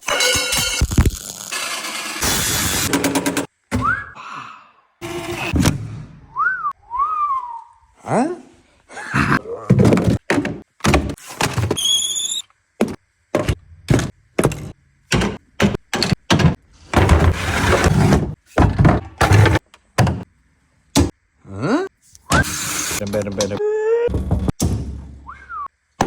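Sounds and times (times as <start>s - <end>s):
high whistle: 3.7s - 4.2s, 6.3s - 7.8s, 25.2s - 25.7s.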